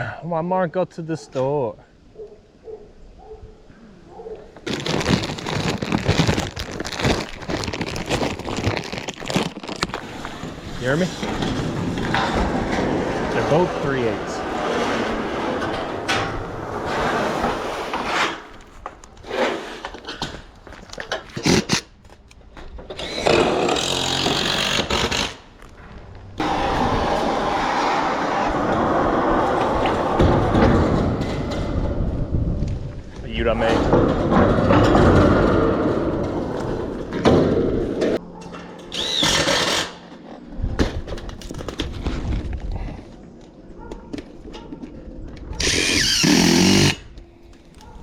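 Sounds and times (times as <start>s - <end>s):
knocks and clatter of work: 10.0s - 21.6s, 22.5s - 39.8s
power tool on lumber: 22.9s - 25.4s, 45.6s - 47.0s.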